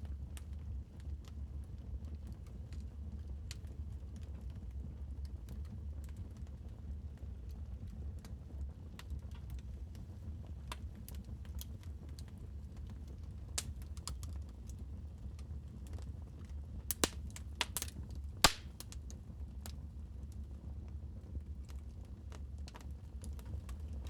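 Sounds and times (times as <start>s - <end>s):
wood fire crackling: 8.2s - 20.6s, 21.5s - 24.0s.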